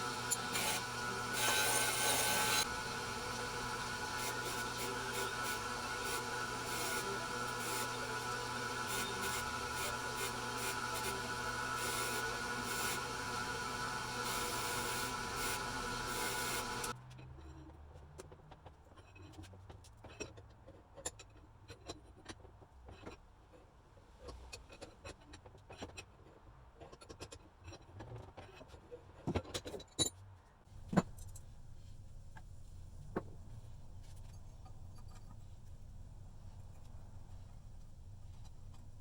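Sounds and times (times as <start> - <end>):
low steady hum: 30.7 - 39.0.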